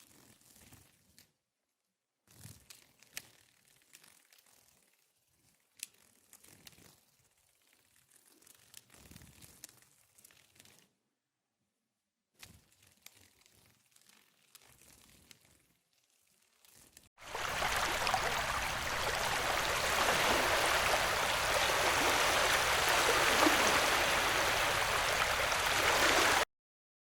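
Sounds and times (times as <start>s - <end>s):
steady rushing noise: 17.4s - 26.4s.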